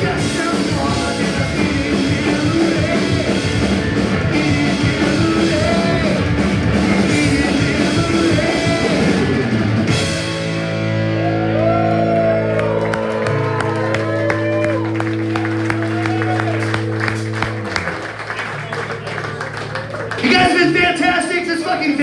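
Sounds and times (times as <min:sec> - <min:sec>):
person singing: 0:00.0 - 0:09.5
drum kit: 0:00.0 - 0:22.0
electric guitars: 0:00.0 - 0:22.0.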